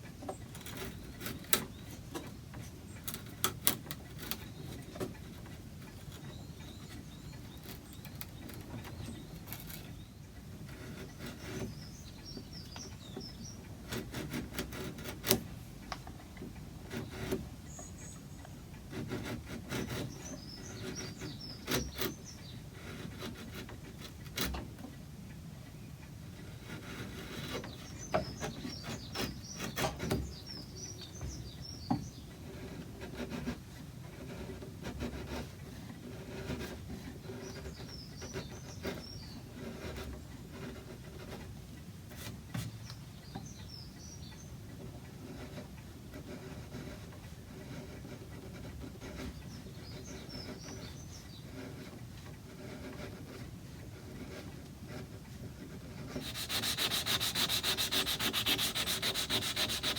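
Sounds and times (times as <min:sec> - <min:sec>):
sanding rasp: 0:18.9 - 0:23.7, 0:26.7 - 0:30.6, 0:46.1 - 0:53.4, 0:54.0 - 0:59.9.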